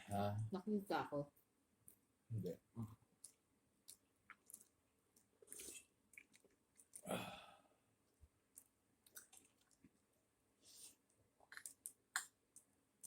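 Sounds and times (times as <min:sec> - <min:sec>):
chewing and mouth clicks: 0:03.2 - 0:07.1, 0:08.5 - 0:10.0, 0:11.4 - 0:12.7.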